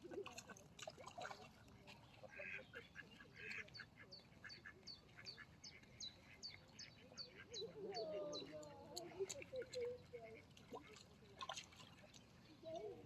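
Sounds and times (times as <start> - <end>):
ducks peeping faintly: 1.2 - 11.0.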